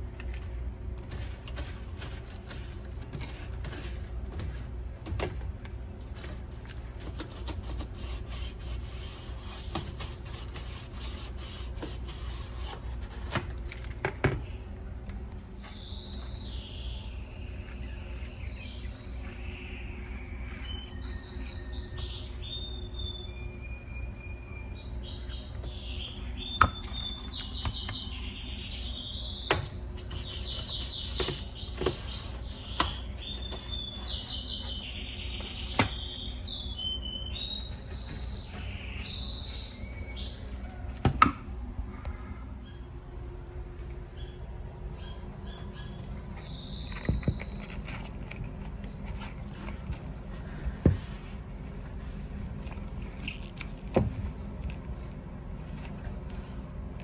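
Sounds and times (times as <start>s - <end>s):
steady low hum: 0.0s - 57.0s
small birds chirping: 15.6s - 40.9s, 44.1s - 57.0s.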